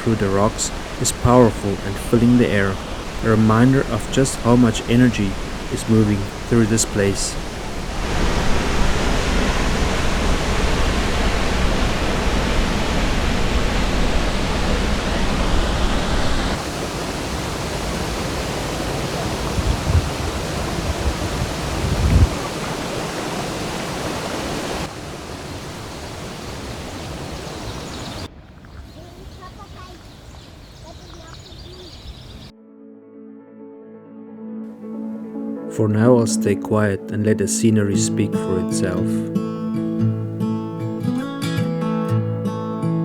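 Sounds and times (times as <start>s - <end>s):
waterfall roaring: 0.0s - 28.3s.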